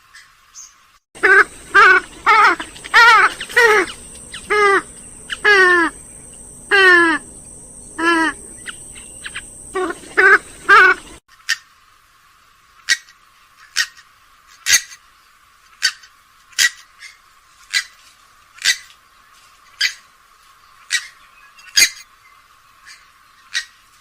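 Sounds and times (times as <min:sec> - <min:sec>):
swamphen calling: 0:00.6 - 0:11.6.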